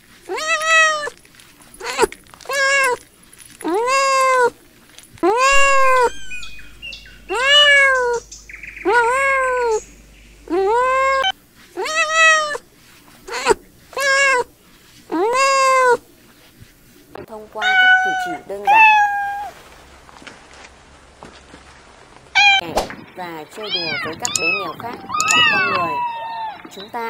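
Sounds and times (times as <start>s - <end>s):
kittens meowing: 5.3s - 9.9s, 10.5s - 12.6s, 17.6s - 19.6s, 22.4s - 22.6s, 23.6s - 26.7s.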